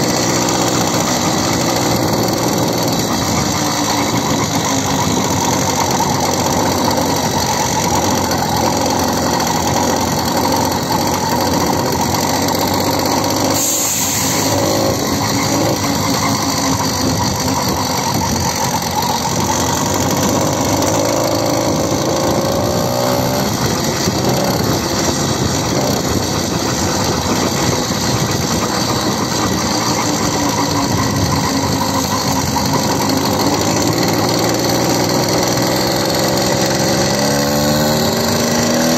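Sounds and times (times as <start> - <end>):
motorcycle engine running: 0.0 - 38.9
rushing wind noise: 23.3 - 33.9.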